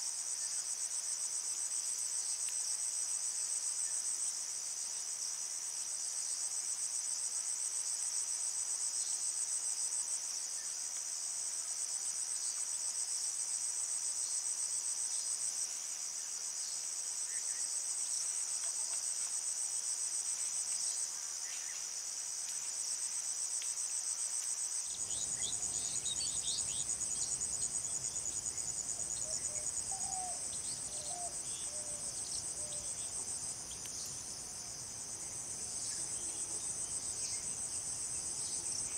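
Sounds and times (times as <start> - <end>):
insects trilling: 24.8 - 38.9.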